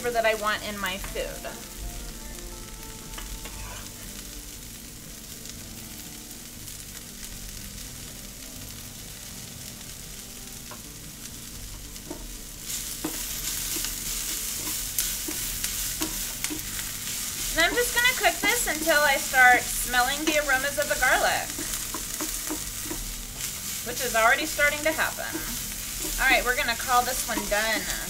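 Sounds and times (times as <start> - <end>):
vegetables sizzling in frying pan: 0.0 - 28.0
utensil knocking on pan: 13.0 - 23.5, 24.4 - 28.0.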